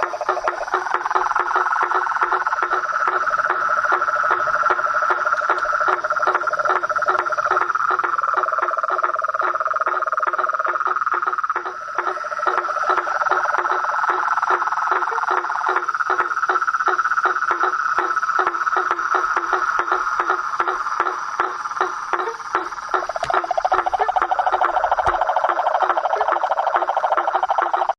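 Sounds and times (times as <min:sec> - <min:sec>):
chorus of frogs calling: 0:00.0 - 0:27.9
rapid trilled frog calls: 0:00.0 - 0:27.9.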